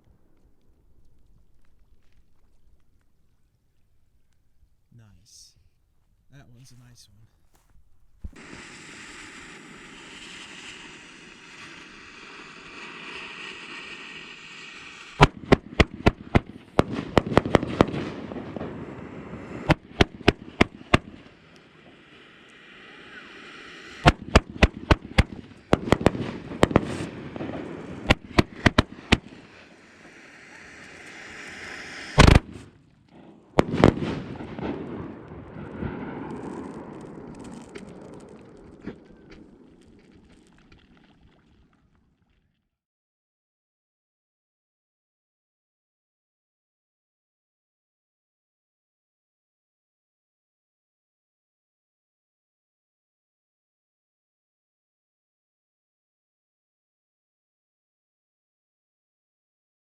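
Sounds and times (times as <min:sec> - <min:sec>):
firework volleys: 0:05.0 - 0:05.6, 0:06.3 - 0:41.8
firework crackling and hissing: 0:07.6 - 0:41.8.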